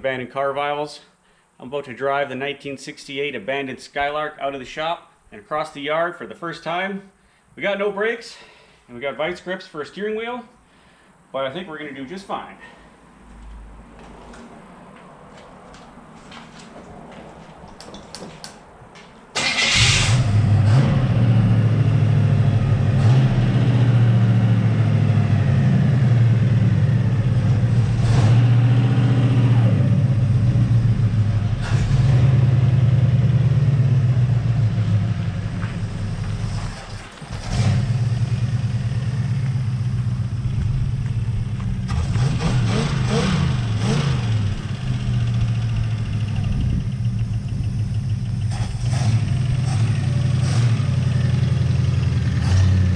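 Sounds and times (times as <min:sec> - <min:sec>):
car engine starting and revving: 0:19.4 - 0:52.9.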